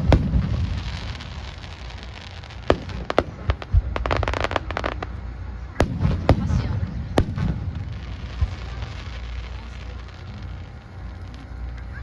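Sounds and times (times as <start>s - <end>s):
fireworks bangs and pops: 0.0s - 5.2s, 5.8s - 11.9s
fireworks crackling hiss: 0.0s - 12.0s.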